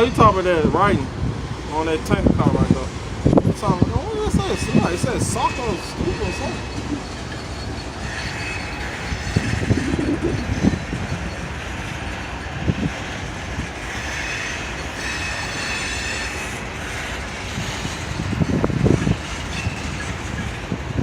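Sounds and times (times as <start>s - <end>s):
freight cars rolling on rails: 0.0s - 21.0s
high wheel squeal: 4.1s - 20.7s.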